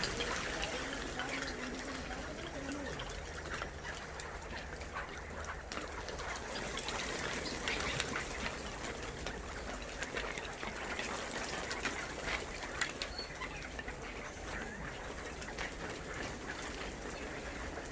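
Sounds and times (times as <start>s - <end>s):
partridges clucking calls: 0.0s - 17.9s.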